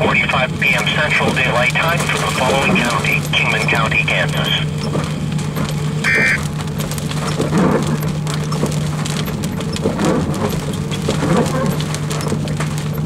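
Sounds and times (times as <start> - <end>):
steady low hum: 0.0 - 11.2
rain tapping on vehicle: 0.0 - 13.0
short electronic beep: 6.0 - 6.4.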